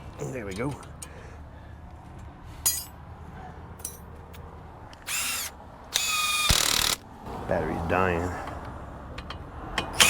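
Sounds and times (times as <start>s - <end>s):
cordless electric ratchet running: 5.0s - 7.0s.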